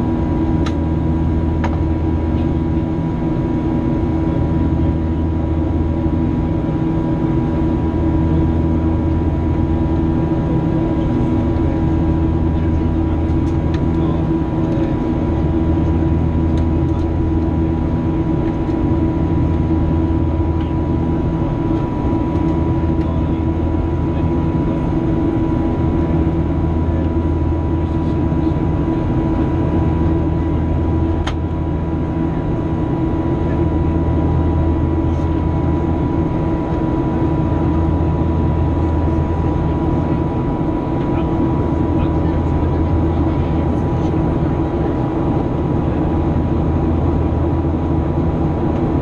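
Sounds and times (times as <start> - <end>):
jet engine drone in flight: 0.0 - 49.0.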